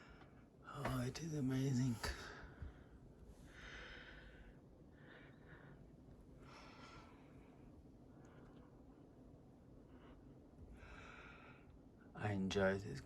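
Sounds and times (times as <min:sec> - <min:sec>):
soft breaths: 0:01.8 - 0:12.1.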